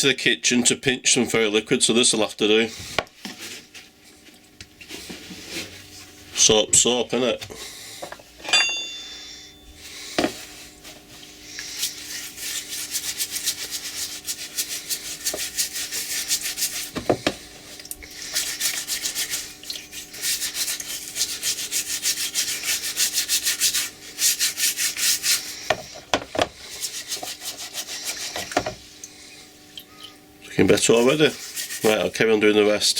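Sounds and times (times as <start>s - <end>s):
scrubbing metal parts: 11.5s - 28.8s, 30.6s - 32.2s.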